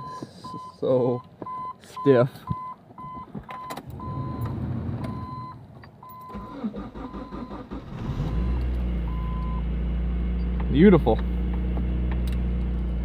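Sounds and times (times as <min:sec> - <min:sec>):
beep: 0:00.0 - 0:00.8, 0:02.5 - 0:07.6, 0:08.3 - 0:09.6
car engine cranking and starting: 0:03.4 - 0:13.0.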